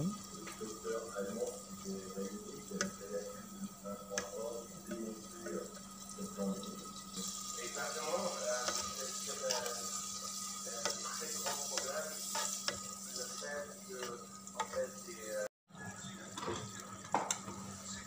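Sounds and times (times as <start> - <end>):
spice paste sizzling in oil: 0.0 - 15.5
spatula scraping and tapping pot: 2.7 - 3.0, 4.1 - 5.8, 8.0 - 13.4, 14.0 - 14.9.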